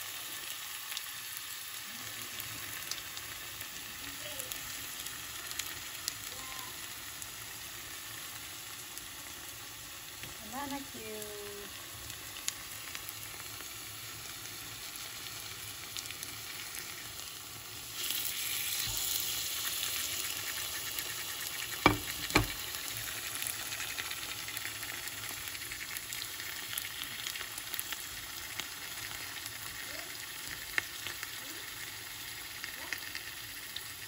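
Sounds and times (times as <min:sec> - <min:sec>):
bananas sizzling in oil: 0:00.0 - 0:34.0.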